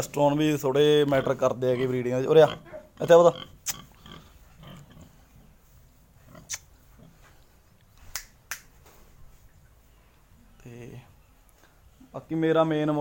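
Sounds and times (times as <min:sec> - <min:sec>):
faint low animal sounds: 0:00.8 - 0:07.8.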